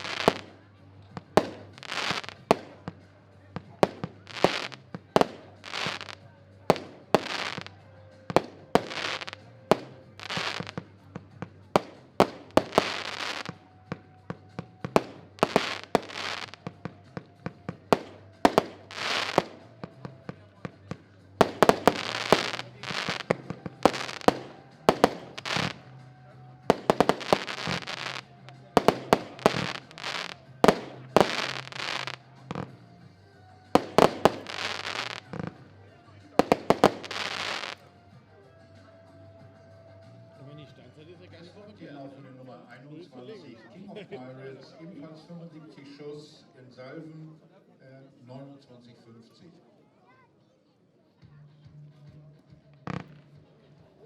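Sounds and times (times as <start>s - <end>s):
fireworks hissing: 0.0s - 0.6s, 1.2s - 2.9s, 3.8s - 10.8s, 11.8s - 13.6s, 14.8s - 16.8s, 17.9s - 20.1s, 21.4s - 25.9s, 26.7s - 32.2s, 33.8s - 35.6s, 36.4s - 37.8s
firework bangs: 0.0s - 3.0s, 3.6s - 26.0s, 26.7s - 32.8s, 33.7s - 35.7s, 36.3s - 37.9s, 52.9s - 53.4s.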